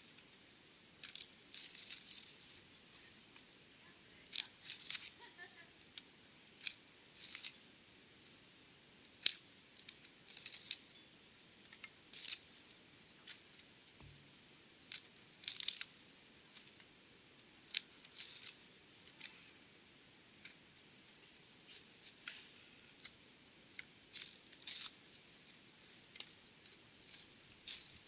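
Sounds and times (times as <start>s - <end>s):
dry wood crackling: 0.0s - 7.6s, 9.1s - 10.9s, 14.8s - 19.7s, 20.4s - 28.0s.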